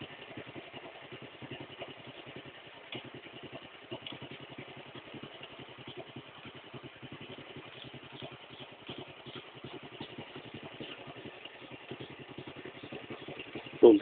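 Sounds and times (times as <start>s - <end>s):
boat engine chugging: 0.0s - 14.0s.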